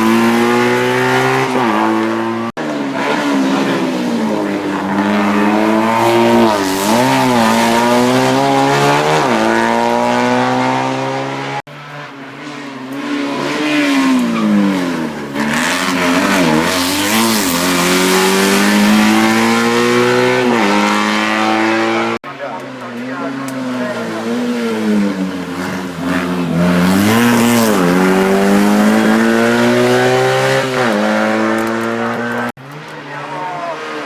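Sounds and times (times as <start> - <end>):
race car engine at high revs: 0.0 - 34.0.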